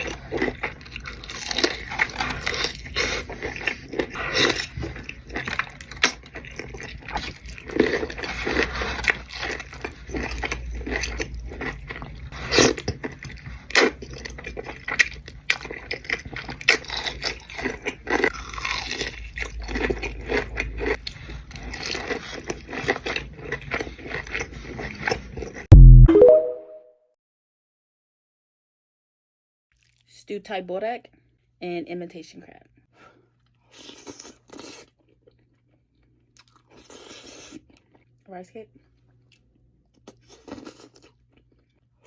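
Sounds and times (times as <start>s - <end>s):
person biting and chewing food: 0.0s - 26.3s, 33.7s - 35.7s, 39.2s - 41.6s.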